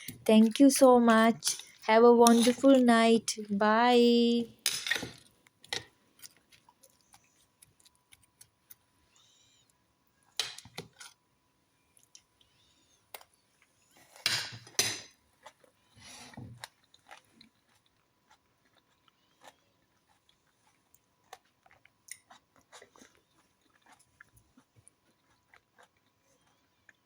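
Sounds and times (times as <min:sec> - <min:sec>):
person chewing crunchy food: 0:06.0 - 0:08.9, 0:15.1 - 0:27.0.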